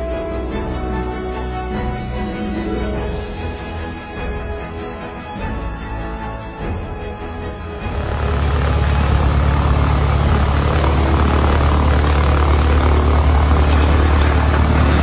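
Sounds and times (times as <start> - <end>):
aircraft engine droning: 7.6 - 15.0.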